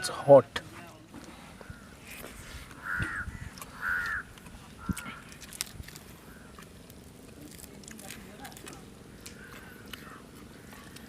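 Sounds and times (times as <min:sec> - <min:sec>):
bird calling: 0:01.5 - 0:05.5, 0:06.1 - 0:06.8, 0:09.1 - 0:11.0.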